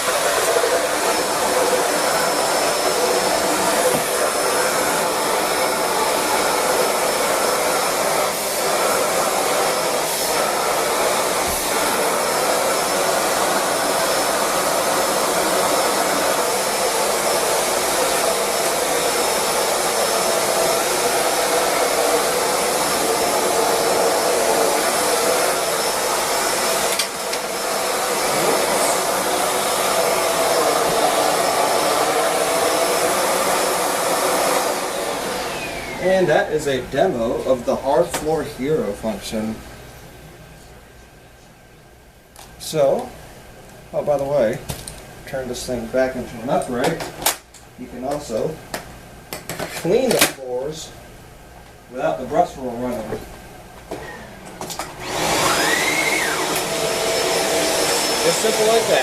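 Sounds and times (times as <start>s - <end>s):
vacuum cleaner running: 0.0s - 40.1s, 51.9s - 59.0s.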